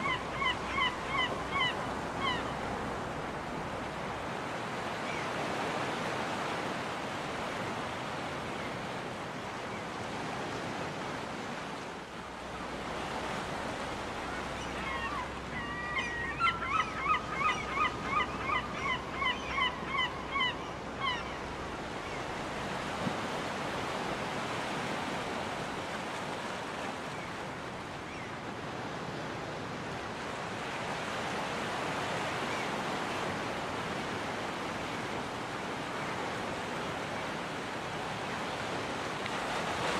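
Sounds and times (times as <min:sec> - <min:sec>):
seagull calling: 0:00.0 - 0:02.6, 0:14.2 - 0:22.3
ocean surf on beach: 0:00.0 - 0:39.9.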